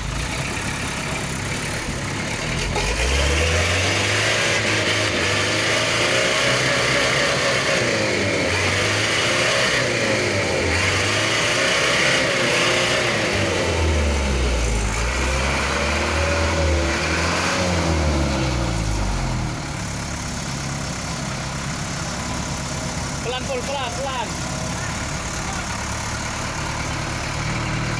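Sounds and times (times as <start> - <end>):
truck engine revving: 0.0 - 27.9.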